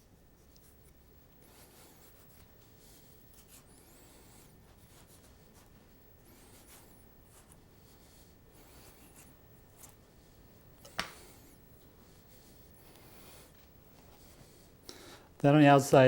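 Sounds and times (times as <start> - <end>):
knife scraping mango skin: 3.2 - 7.6, 8.6 - 10.0.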